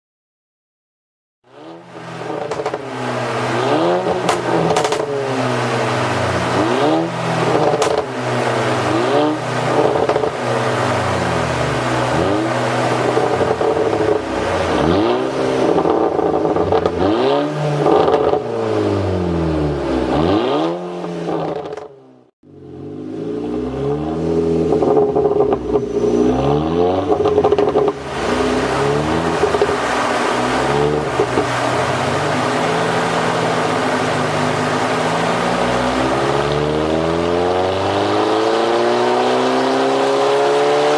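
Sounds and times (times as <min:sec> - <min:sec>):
car engine revving: 0:01.5 - 0:40.9
exhaust pops and crackles: 0:02.3 - 0:02.9, 0:04.1 - 0:05.3, 0:07.4 - 0:08.2, 0:09.7 - 0:10.5, 0:12.1 - 0:14.8, 0:15.6 - 0:17.1, 0:17.8 - 0:18.5, 0:21.4 - 0:21.9, 0:24.7 - 0:25.9, 0:27.0 - 0:32.5.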